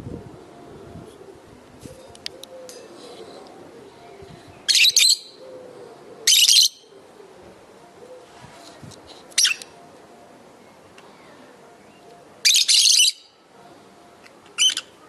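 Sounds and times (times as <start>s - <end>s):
lovebirds shrill calls: 4.7s - 5.4s, 12.5s - 13.3s, 14.6s - 14.9s
background chatter: 7.1s - 12.5s, 13.2s - 15.0s.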